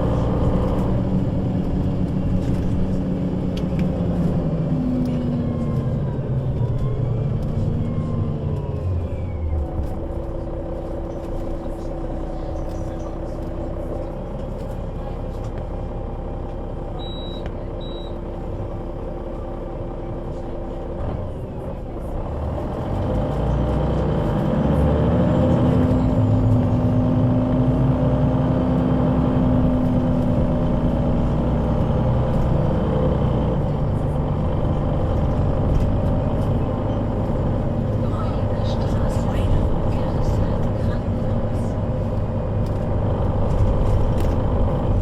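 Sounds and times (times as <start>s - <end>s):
bus engine: 0.0s - 45.0s
short high beeps: 17.0s - 18.2s.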